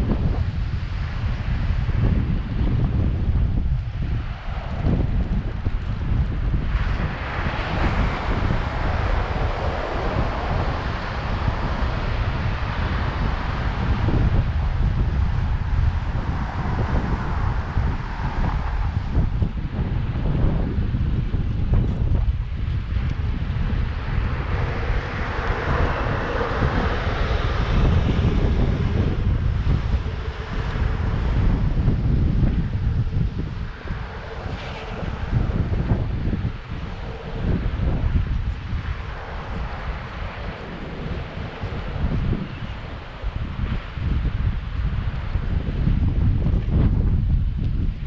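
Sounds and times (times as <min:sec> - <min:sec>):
steady rushing hiss: 0:00.0 - 0:46.1
wind buffeting microphone: 0:00.0 - 0:48.0
engine passing by: 0:22.8 - 0:44.2.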